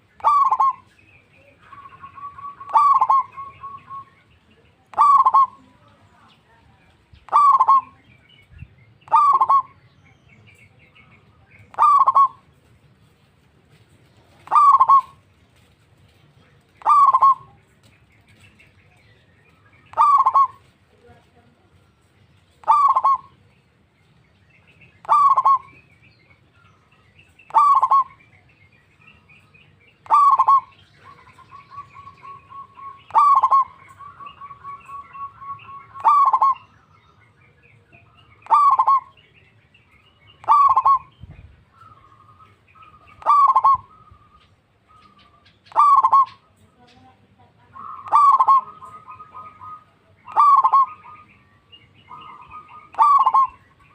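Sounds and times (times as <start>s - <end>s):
dove calling: 0.0s - 53.9s
soft rapid trilling coo: 0.2s - 0.8s, 2.6s - 3.4s, 5.0s - 5.6s, 7.3s - 8.0s, 11.8s - 12.4s, 14.4s - 15.2s, 16.8s - 17.5s, 20.0s - 20.6s, 22.6s - 23.3s, 25.1s - 25.7s, 27.5s - 28.1s, 30.1s - 31.4s, 33.1s - 33.8s, 35.9s - 36.6s, 38.5s - 39.1s, 40.4s - 41.1s, 43.2s - 44.1s, 45.0s - 46.4s, 48.0s - 51.0s, 52.4s - 53.6s.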